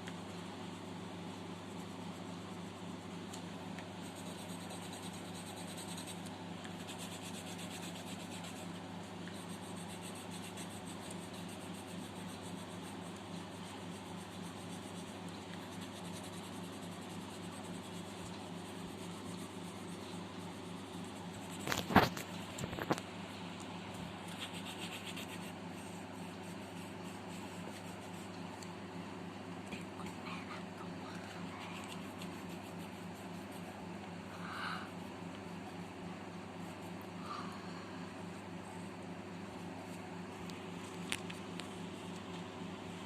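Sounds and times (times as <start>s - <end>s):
pencil scratching on paper: 4.0s - 22.2s, 24.3s - 28.4s, 30.0s - 34.7s.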